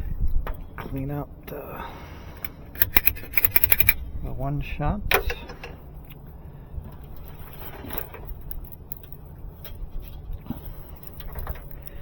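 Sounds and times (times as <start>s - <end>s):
low background hum: 0.0s - 12.0s
small tools clicking and tapping: 2.8s - 4.0s.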